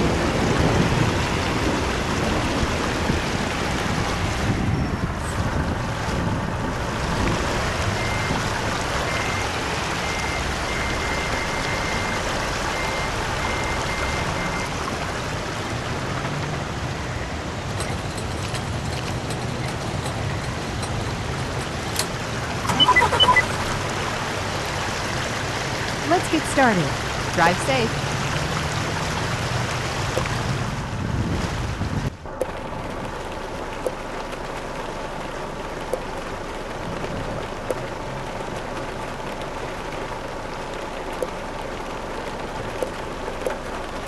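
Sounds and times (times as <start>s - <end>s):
truck engine rumbling: 0.0s - 44.0s
short high-pitched beeps: 22.7s - 23.6s.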